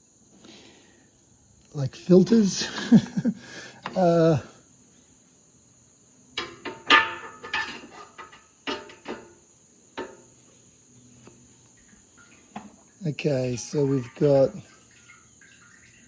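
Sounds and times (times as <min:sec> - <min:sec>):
crickets chirring: 0:00.0 - 0:16.0
sharp metallic knocks and clanks: 0:06.4 - 0:09.4, 0:10.0 - 0:10.3.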